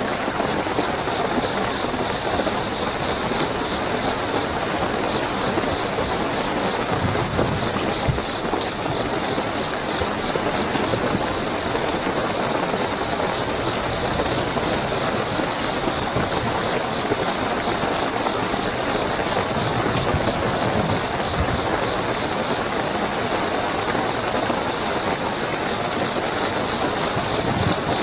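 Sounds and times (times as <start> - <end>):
crickets trilling: 0.0 - 28.0
heavy rainfall: 0.0 - 28.0.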